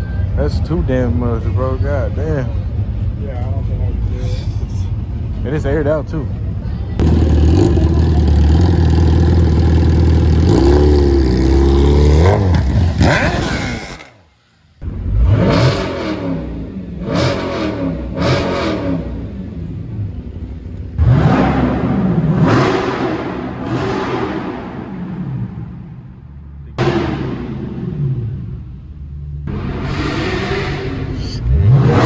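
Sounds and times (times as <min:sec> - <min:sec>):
car engine revving: 0:07.0 - 0:14.2, 0:14.8 - 0:32.0.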